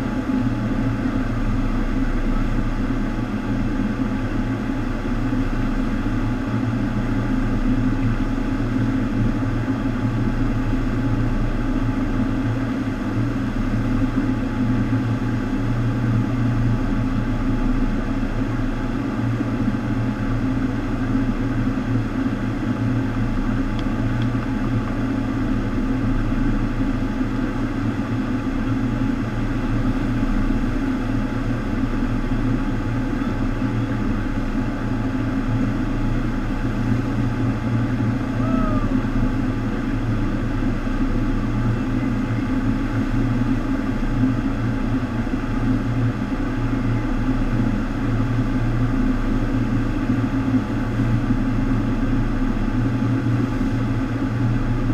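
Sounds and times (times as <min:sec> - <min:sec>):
low pump hum: 0:00.0 - 0:54.9.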